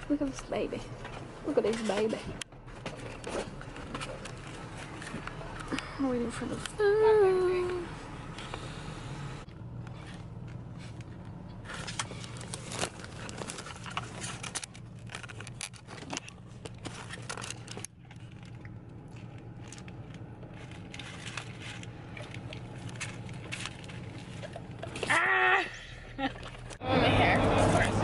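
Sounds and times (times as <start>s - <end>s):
low steady hum: 0.0s - 28.0s
clicks scrapes and rustles: 9.8s - 25.1s.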